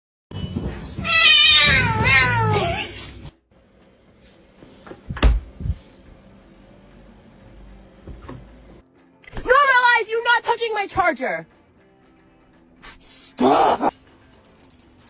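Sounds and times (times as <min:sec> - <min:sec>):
cat meowing: 0:01.0 - 0:02.9
knocks and thump: 0:05.1 - 0:05.8.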